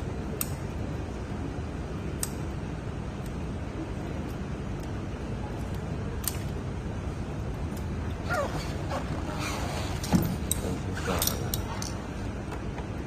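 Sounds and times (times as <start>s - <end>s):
metal parts squeaking and creaking: 8.2s - 12.1s.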